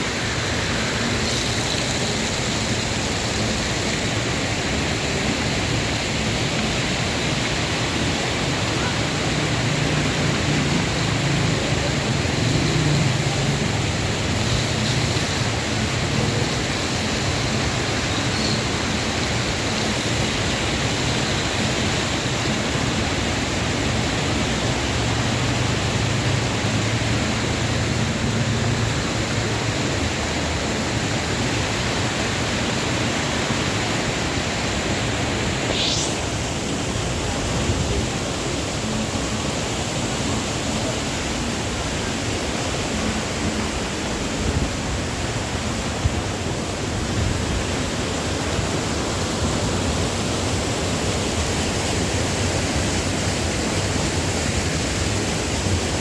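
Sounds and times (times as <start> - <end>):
waterfall roaring: 0.0 - 56.0
short rising whistle: 35.7 - 36.3.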